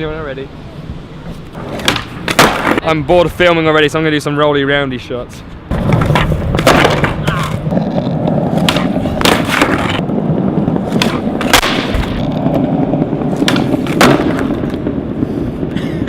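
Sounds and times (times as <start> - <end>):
skateboard wheels rumbling: 0.8 - 2.9, 5.6 - 16.0
skateboard clacks: 1.6 - 2.8, 5.7 - 15.0.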